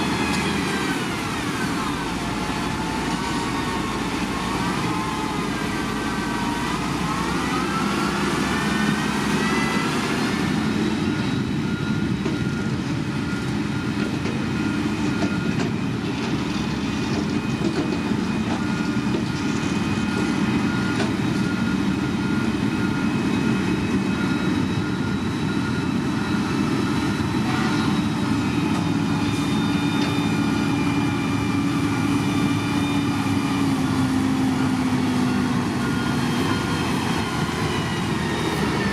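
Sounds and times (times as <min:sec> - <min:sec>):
rising whine: 0:00.0 - 0:16.2
heavy diesel machinery running: 0:00.0 - 0:38.9.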